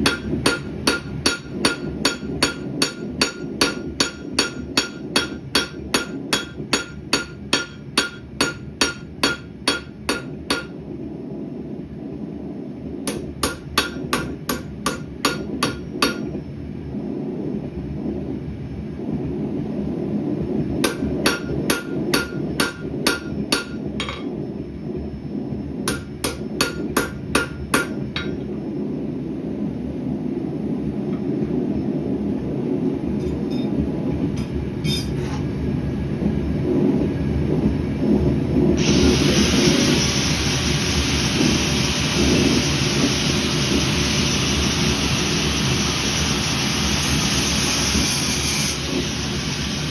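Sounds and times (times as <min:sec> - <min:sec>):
hammer striking metal on anvil: 0:00.0 - 0:10.8, 0:13.1 - 0:16.3, 0:20.8 - 0:24.4, 0:25.9 - 0:28.5
loud steady hiss: 0:38.8 - 0:49.9.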